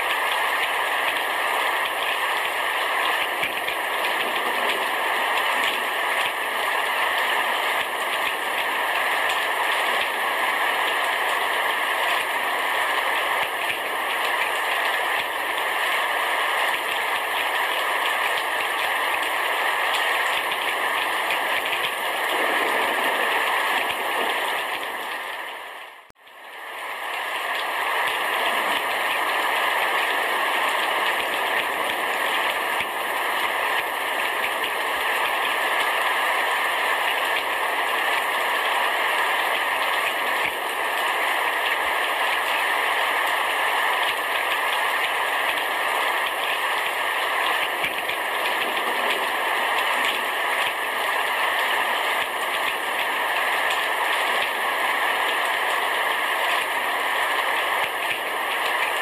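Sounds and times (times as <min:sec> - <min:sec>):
heavy rain on a roof: 0:00.0 - 0:59.0.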